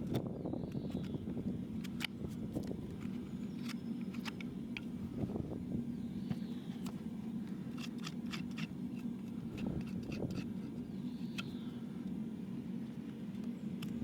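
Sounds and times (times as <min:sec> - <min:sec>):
steady low hum: 0:00.0 - 0:14.0
hand tools clicking and scraping hoof: 0:01.8 - 0:04.9, 0:07.7 - 0:10.8.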